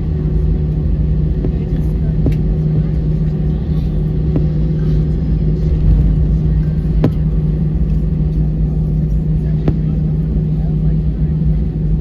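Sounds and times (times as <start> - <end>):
airplane cabin rumble: 0.0 - 12.0
steady hum: 0.0 - 12.0.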